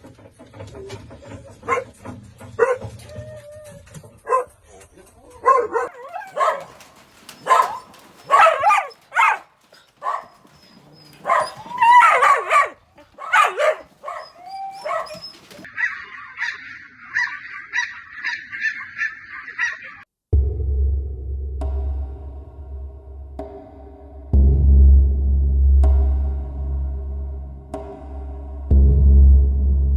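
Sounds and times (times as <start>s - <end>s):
dogs barking and yelping: 1.6s - 2.0s, 2.6s - 4.6s, 5.3s - 20.0s
high-pitched dog yaps: 5.4s - 20.0s.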